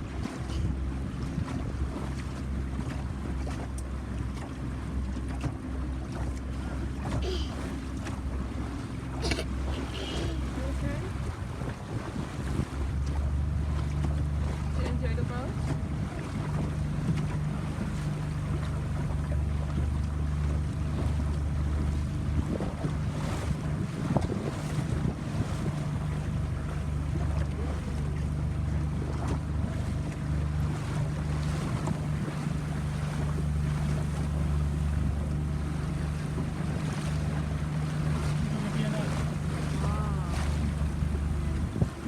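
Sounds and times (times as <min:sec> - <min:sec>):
boat engine droning: 0:00.0 - 0:42.0
water rushing: 0:00.0 - 0:42.0
wind buffeting microphone: 0:09.5 - 0:13.0, 0:21.9 - 0:28.0, 0:29.4 - 0:42.0.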